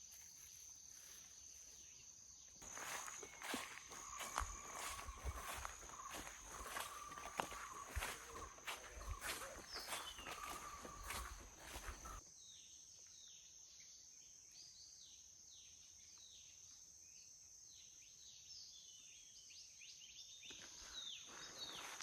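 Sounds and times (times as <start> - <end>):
footsteps through undergrowth: 0.0 - 1.9, 2.6 - 12.2
high insect drone: 2.6 - 12.2.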